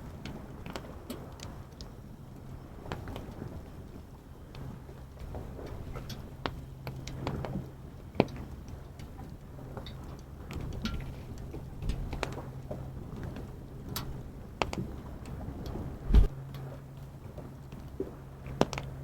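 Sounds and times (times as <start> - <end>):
low steady rumble: 8.8 - 19.0.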